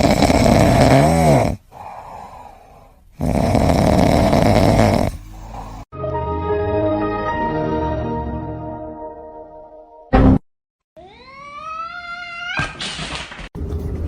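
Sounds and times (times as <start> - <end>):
pet snoring loudly: 0.0 - 2.4, 3.2 - 5.9.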